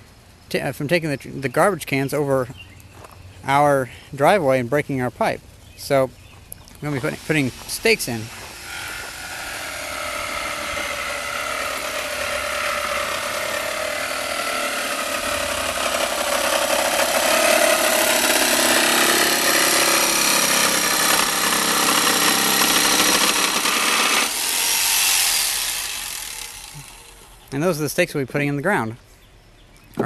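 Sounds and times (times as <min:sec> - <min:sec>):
power tool motor running: 0:06.8 - 0:27.5.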